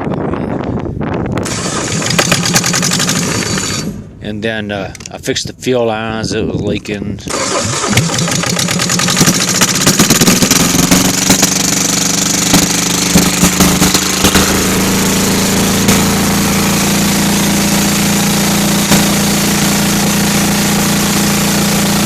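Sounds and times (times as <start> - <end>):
engine knocks: 1.4 - 4.0, 7.4 - 20.9
diesel engine running: 1.4 - 4.3, 7.3 - 22.0.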